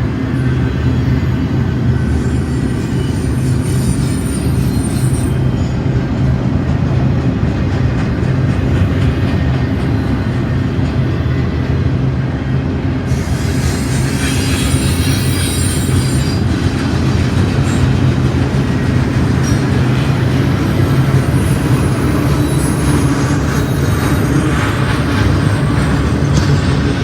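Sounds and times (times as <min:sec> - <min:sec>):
wheel squeal on rails: 0:00.0 - 0:06.1, 0:13.1 - 0:27.0
freight train rumbling past: 0:00.0 - 0:27.0.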